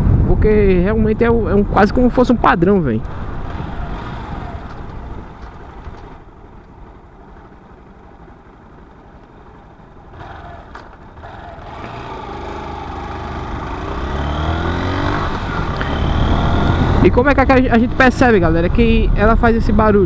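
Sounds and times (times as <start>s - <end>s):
vehicle engine running: 2.9s - 18.0s.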